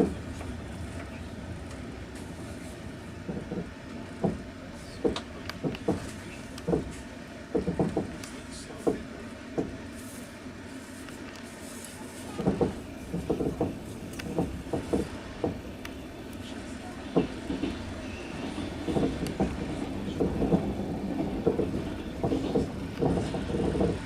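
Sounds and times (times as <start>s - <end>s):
train rolling rumble: 0.0s - 24.0s
train wheels clacking on rail joints: 3.2s - 9.0s, 12.3s - 24.0s.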